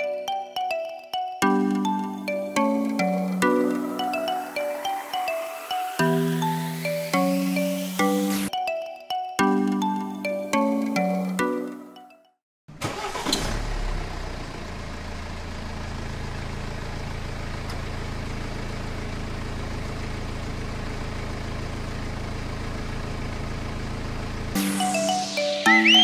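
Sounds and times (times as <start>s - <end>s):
tractor engine idling: 12.7s - 24.5s.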